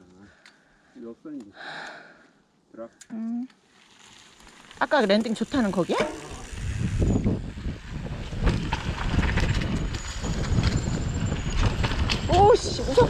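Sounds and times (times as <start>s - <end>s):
wind and tyres rumbling: 3.8s - 13.0s
bike knocks and rattles: 8.1s - 12.6s.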